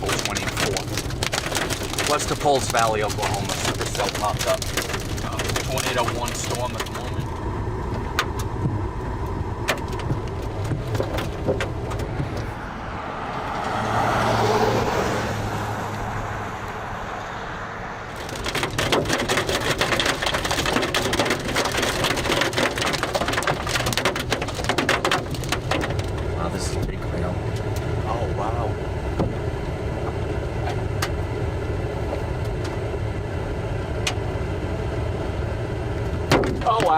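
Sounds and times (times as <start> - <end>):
hail pelting vehicle: 0.0 - 12.6, 18.1 - 29.6, 35.7 - 36.9
vehicle road noise: 0.0 - 36.9.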